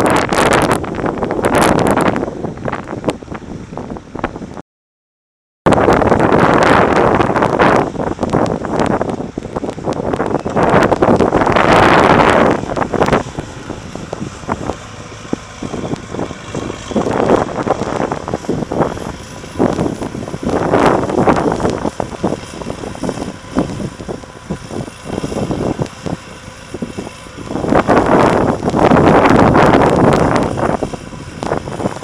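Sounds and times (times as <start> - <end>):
wind buffeting microphone: 0.0 - 4.6, 5.7 - 32.0
tractor diesel engine under load: 5.7 - 32.0.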